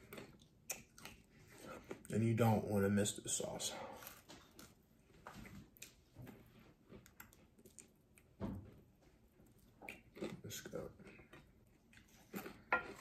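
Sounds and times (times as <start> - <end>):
man chewing crispy chicken: 0.0 - 2.1, 3.9 - 8.3, 9.4 - 13.0
thump: 8.4 - 8.7.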